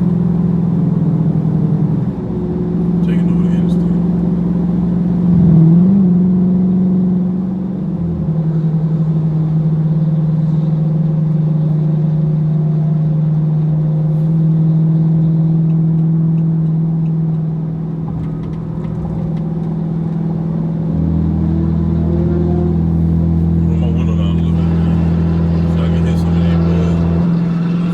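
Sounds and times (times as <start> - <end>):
car engine and road noise drone: 0.0 - 27.9
deep rumble: 17.5 - 27.9.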